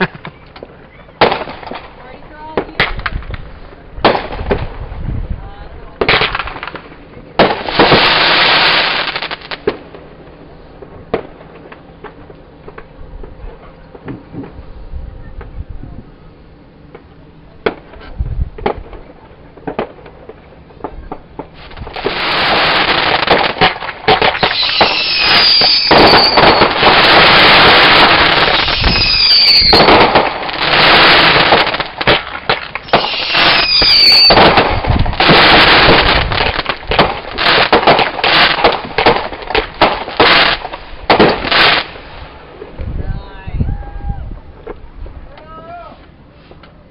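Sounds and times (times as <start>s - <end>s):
fireworks whistling: 0.0s - 5.0s, 6.0s - 10.1s, 18.6s - 44.0s
fireworks bangs and crackling: 0.0s - 14.8s, 16.9s - 45.3s.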